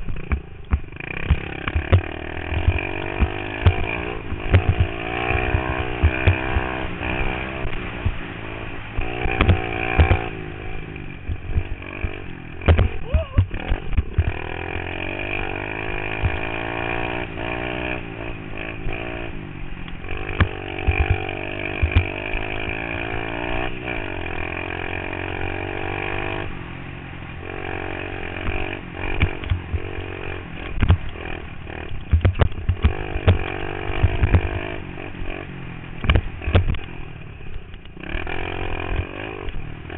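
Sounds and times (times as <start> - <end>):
pit bike engine revving: 0.0 - 39.9
sharp knocks: 0.1 - 6.8, 9.3 - 10.3, 11.3 - 14.4, 20.4 - 22.2, 32.1 - 34.6.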